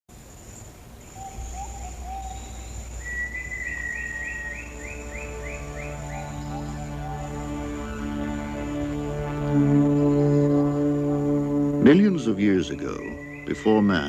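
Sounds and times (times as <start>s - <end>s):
high insect buzz: 0.1s - 14.0s
bird calls: 0.5s - 8.0s, 11.8s - 14.0s
low drone: 1.5s - 14.0s
music: 3.5s - 14.0s
quick rising chirps: 12.5s - 13.8s.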